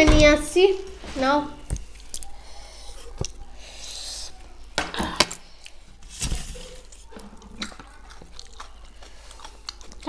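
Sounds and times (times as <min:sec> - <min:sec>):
crisp bites and chewing: 0:05.3 - 0:10.0.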